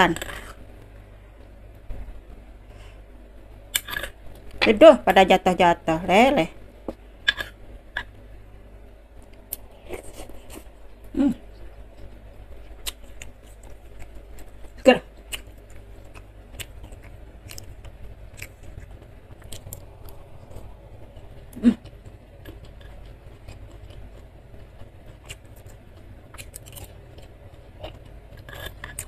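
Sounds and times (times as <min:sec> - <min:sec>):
steady low hum: 0:00.0 - 0:29.0
chewing crunchy food: 0:09.2 - 0:29.0.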